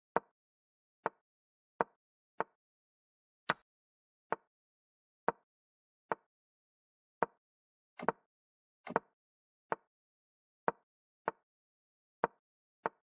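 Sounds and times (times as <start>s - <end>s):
chess move clicks: 8.0s - 8.2s.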